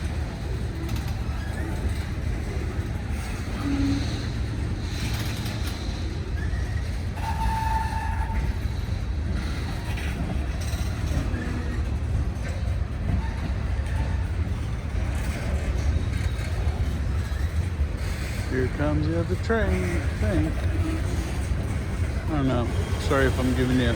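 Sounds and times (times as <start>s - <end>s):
freight train rumbling: 0.0s - 23.9s.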